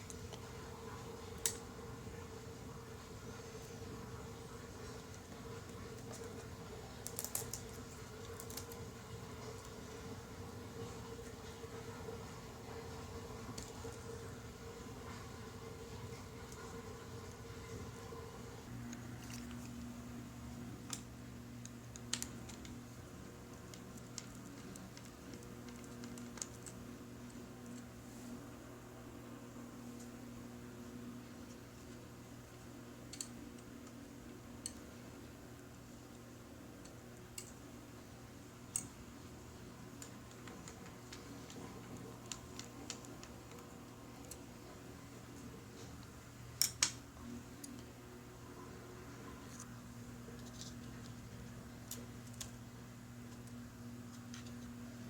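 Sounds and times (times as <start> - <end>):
steady low hum: 0.0 - 55.0
small parts clicking and tapping: 1.4 - 1.7, 5.0 - 9.8, 20.8 - 27.9, 33.0 - 35.0, 35.6 - 37.8, 38.5 - 48.0, 49.4 - 54.8
small clicks and taps of tools: 33.1 - 34.0.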